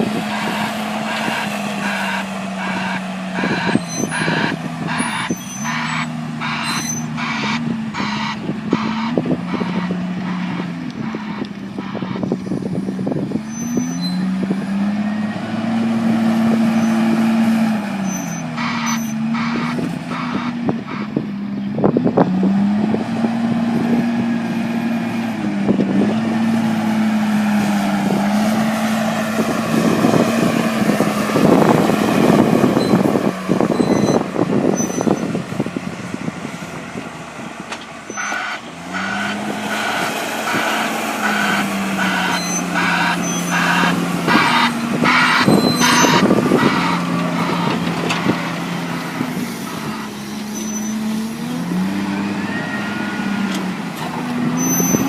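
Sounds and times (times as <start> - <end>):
tractor engine working under load: 0.0 - 55.0.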